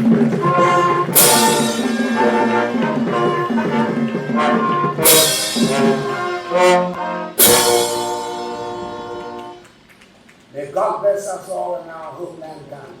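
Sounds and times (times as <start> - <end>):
cymbal crashes: 0.0 - 9.6
brass band playing chords: 0.0 - 9.9.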